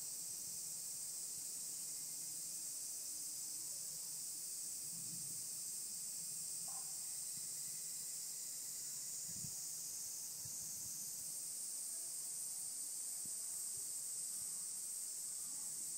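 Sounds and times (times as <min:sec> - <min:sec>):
cicadas buzzing: 0:00.0 - 0:15.9.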